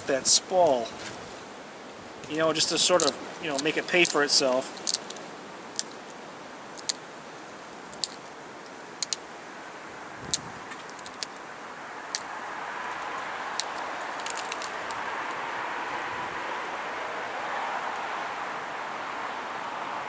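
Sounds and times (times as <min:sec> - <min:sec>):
steady hiss: 0:00.0 - 0:20.0
stone flakes snapping off: 0:03.0 - 0:04.2, 0:13.6 - 0:14.9.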